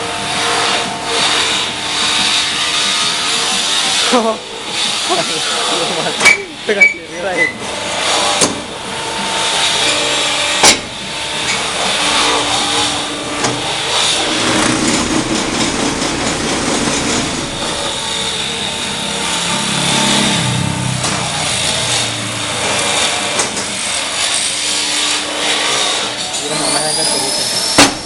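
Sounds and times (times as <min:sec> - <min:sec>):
paving block machine running: 0:00.0 - 0:28.0
sharp metal clank: 0:09.8 - 0:11.6.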